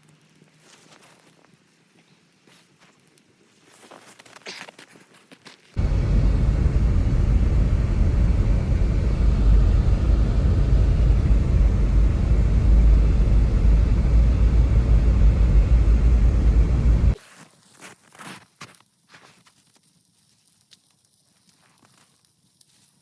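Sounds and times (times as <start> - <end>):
wind buffeting microphone: 5.8 - 17.2.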